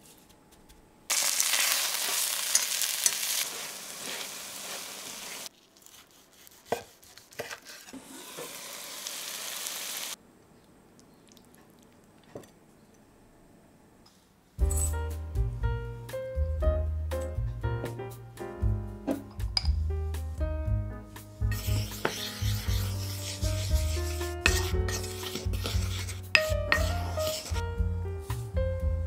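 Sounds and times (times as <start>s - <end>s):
chicken sizzling in hot oil: 1.1s - 5.5s, 8.0s - 10.2s
knife cutting crisp coating: 5.5s - 8.0s, 21.5s - 27.6s.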